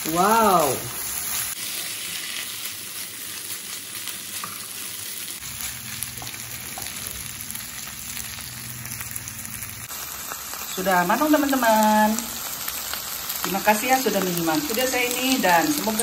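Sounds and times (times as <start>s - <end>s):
food sizzling in a wok: 0.0s - 16.0s.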